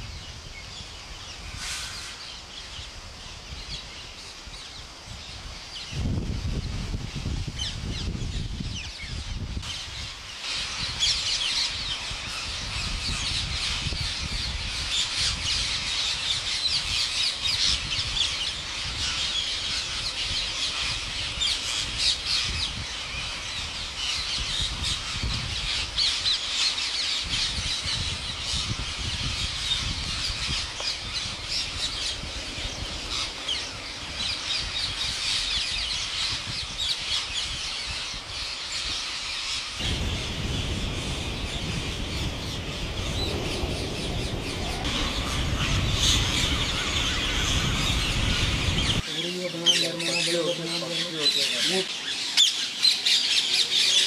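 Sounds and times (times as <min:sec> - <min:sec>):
low rumble: 0:39.8 - 0:49.0.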